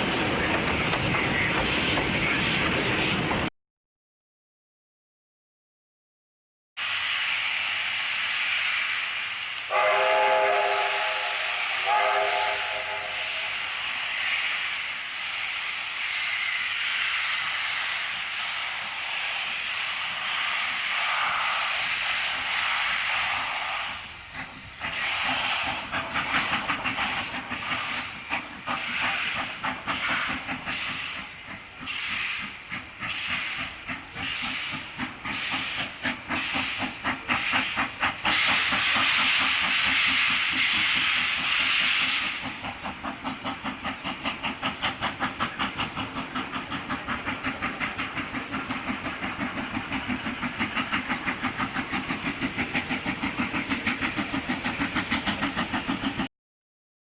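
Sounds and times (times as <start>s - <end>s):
steam locomotive hissing steam: 0.0s - 3.5s, 6.8s - 56.3s
locomotive exhaust chuffs: 17.3s - 56.3s.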